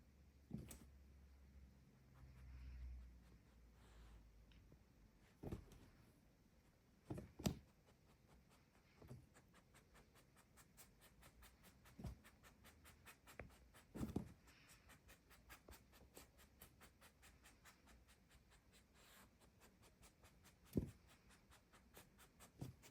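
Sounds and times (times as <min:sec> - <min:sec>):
soft thumps and rubs: 0:00.4 - 0:00.9, 0:05.2 - 0:06.1, 0:06.9 - 0:14.7, 0:20.1 - 0:22.9.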